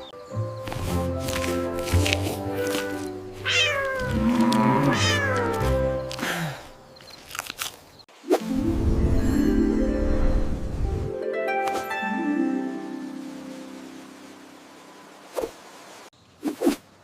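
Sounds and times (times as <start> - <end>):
gentle background music: 0.0 - 7.5, 8.2 - 15.4
cat meowing: 3.4 - 5.8.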